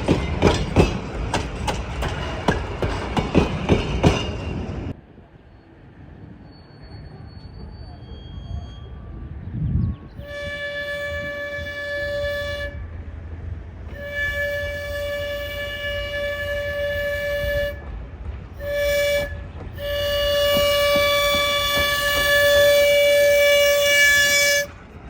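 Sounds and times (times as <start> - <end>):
locomotive horn blasts: 10.2 - 13.0, 13.9 - 18.0, 18.6 - 24.8.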